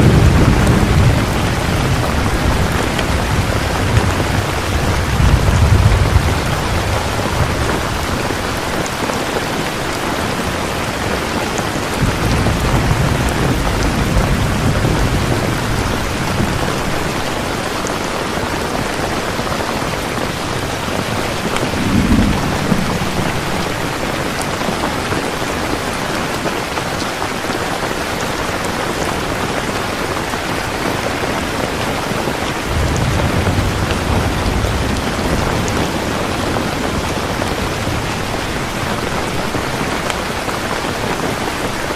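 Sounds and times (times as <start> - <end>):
low thunder rumbles: 0.0 - 17.7, 19.8 - 25.9, 32.6 - 40.0
heavy rain falling: 0.0 - 41.9.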